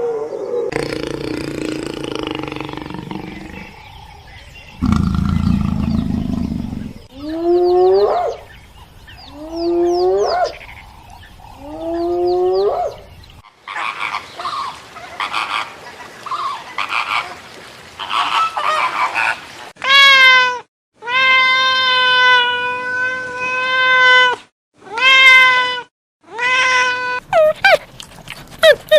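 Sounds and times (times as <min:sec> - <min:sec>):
long steady animal cry: 0:00.0 - 0:03.8.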